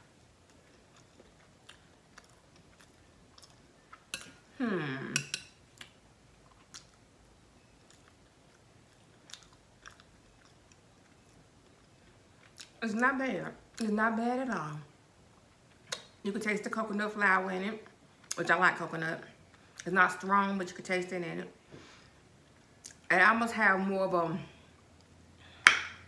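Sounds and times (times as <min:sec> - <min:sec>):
quiet chewing: 0:00.4 - 0:04.6, 0:05.2 - 0:07.0, 0:07.6 - 0:12.8
person humming: 0:04.6 - 0:05.2.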